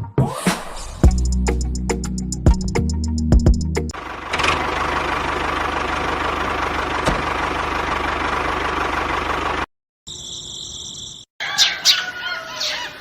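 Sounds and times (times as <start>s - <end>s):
background music with drums: 1.0s - 3.9s.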